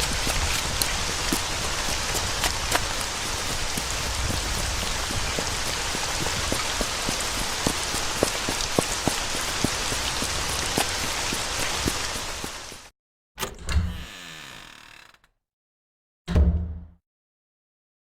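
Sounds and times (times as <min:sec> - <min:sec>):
raindrops tapping on a surface: 0:00.0 - 0:12.8
steady rain: 0:00.0 - 0:12.9.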